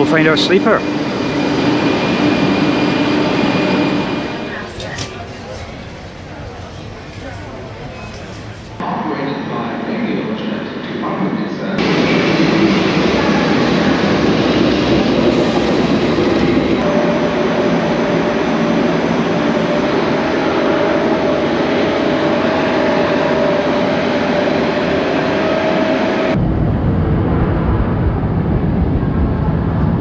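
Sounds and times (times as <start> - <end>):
train rumble and hiss: 0.2 - 8.8
steady whine: 3.8 - 8.8.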